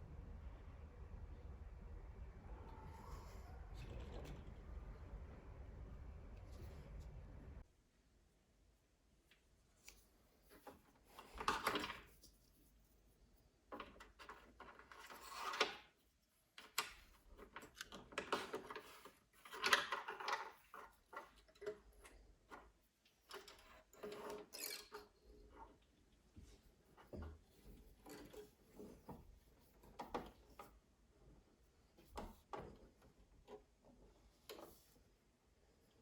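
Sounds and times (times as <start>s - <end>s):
small parts and tools clicking: 16.6s - 25.8s.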